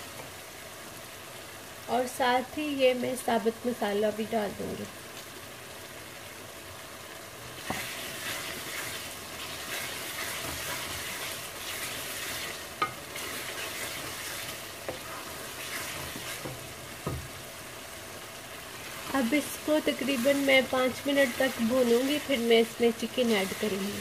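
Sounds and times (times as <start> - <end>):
food sizzling in a pan: 0.0 - 24.0
wooden spatula scraping pan: 7.6 - 16.6.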